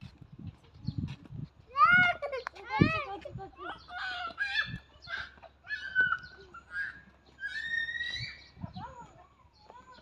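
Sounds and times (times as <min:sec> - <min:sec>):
birds calling with whistle-like calls: 0:03.6 - 0:10.0.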